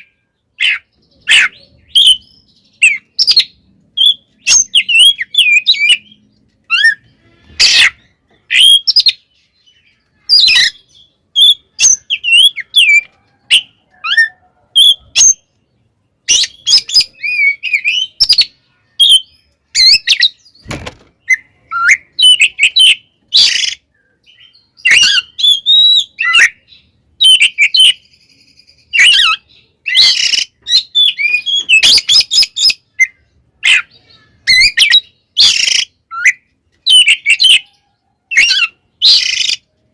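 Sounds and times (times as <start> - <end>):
bird harsh rasping notes: 0.0 - 9.2
bird whistling and chirping: 0.0 - 15.5, 16.2 - 20.6, 21.2 - 39.7.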